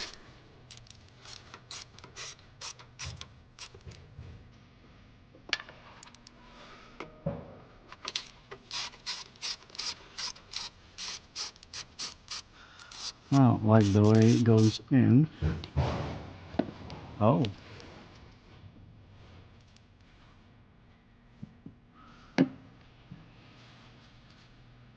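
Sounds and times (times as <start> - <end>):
scraping and rubbing strokes: 8.6 - 14.8.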